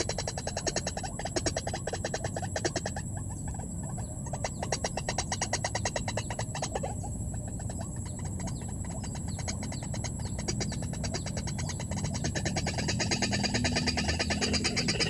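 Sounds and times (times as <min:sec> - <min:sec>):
pulsing animal calls: 0:00.0 - 0:15.0
high-pitched whine: 0:11.6 - 0:15.0.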